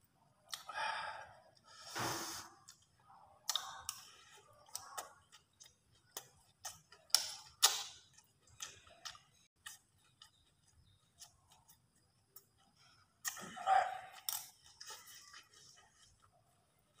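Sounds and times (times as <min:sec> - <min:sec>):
person chewing food: 0:00.4 - 0:01.8, 0:02.5 - 0:17.0
lip smacks: 0:04.7 - 0:09.8.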